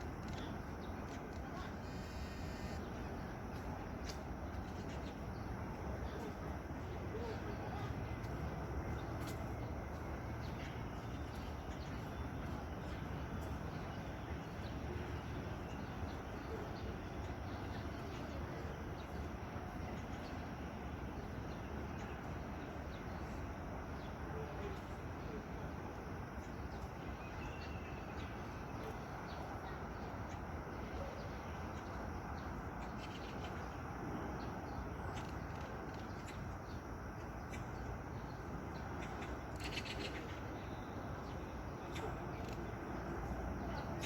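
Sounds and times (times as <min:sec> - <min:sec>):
outdoor background noise: 0:00.0 - 0:44.0
faint bird chirps: 0:00.2 - 0:03.3, 0:26.4 - 0:33.8, 0:37.4 - 0:44.0.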